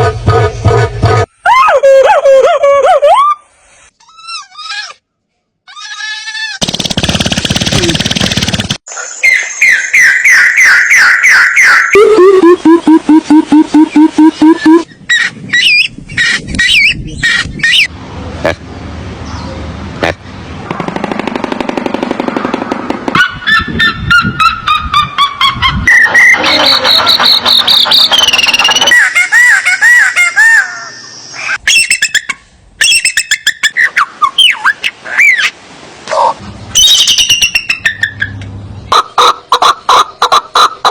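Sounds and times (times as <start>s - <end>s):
whistled animal calls: 25.8s - 29.0s, 36.8s - 38.3s.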